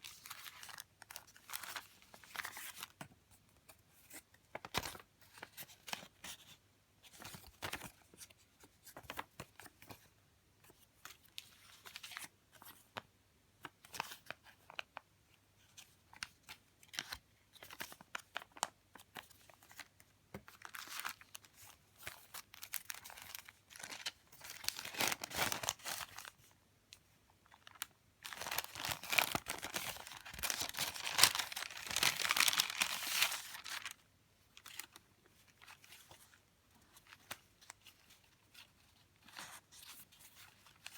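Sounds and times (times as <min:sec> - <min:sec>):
paper and plastic rustling: 0:17.0 - 0:26.5, 0:27.4 - 0:34.0
plastic crinkling: 0:20.6 - 0:26.4, 0:27.4 - 0:34.0.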